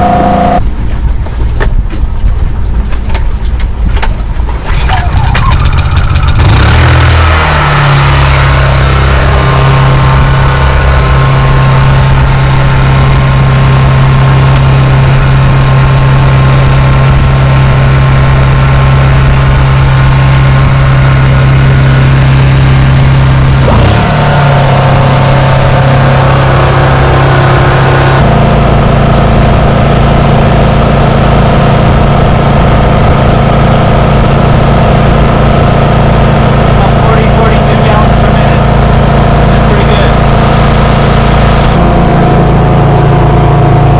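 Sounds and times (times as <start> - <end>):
portable generator engine running: 0.0 - 1.3, 3.7 - 43.9.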